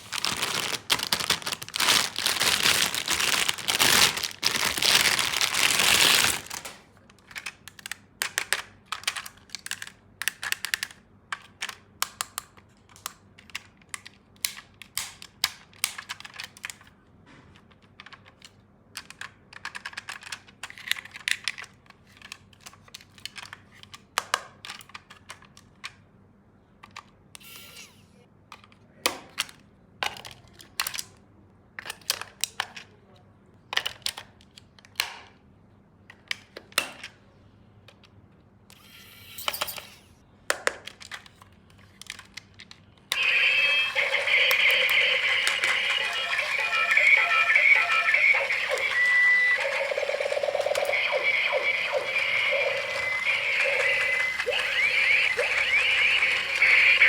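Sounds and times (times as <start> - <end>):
plastic packaging crinkling: 0.0 - 7.0
plastic toy pieces clicking: 0.2 - 16.9, 17.6 - 26.0, 40.5 - 43.3.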